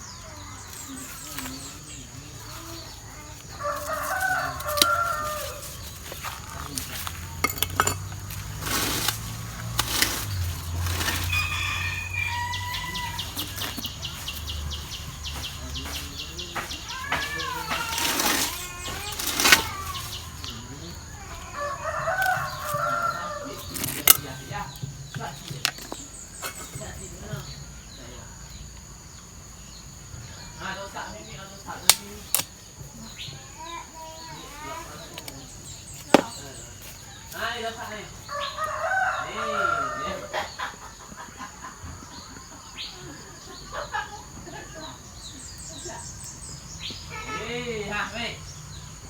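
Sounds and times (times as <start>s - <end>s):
chickens calling: 0.0s - 49.0s
wavering rooster call: 3.2s - 6.7s, 8.6s - 14.3s, 21.2s - 24.4s, 38.3s - 40.6s.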